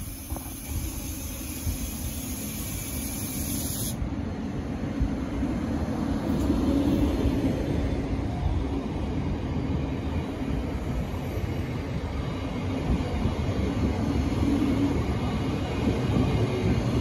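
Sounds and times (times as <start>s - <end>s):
high hiss: 0.0s - 4.0s
electric train rumbling past: 0.0s - 17.0s.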